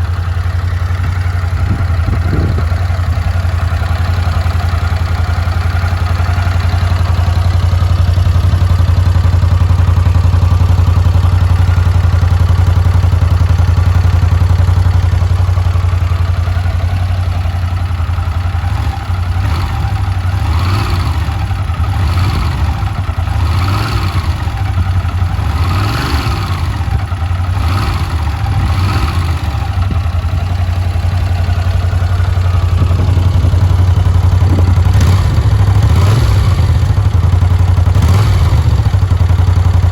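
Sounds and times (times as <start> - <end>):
motorcycle engine idling: 0.0 - 39.9
engine throttle blips: 17.4 - 39.9.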